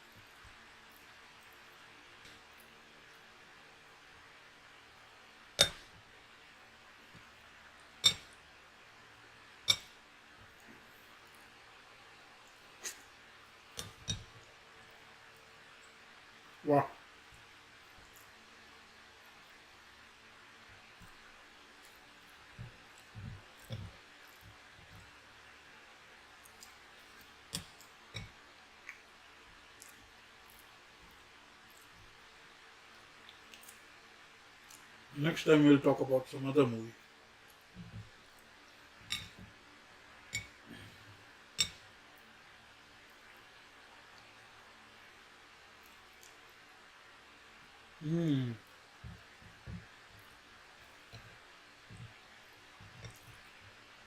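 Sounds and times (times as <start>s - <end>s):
faint steady hiss: 0.0s - 54.0s
tableware clinking: 5.6s - 5.8s, 8.0s - 8.4s, 39.1s - 39.4s
chewing and handling food: 20.8s - 35.1s, 45.5s - 47.5s, 48.6s - 54.0s.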